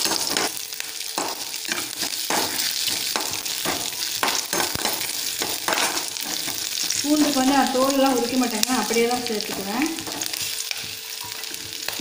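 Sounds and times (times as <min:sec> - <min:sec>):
garlic sizzling in oil: 0:00.0 - 0:12.0
spatula scraping pan: 0:01.2 - 0:07.8.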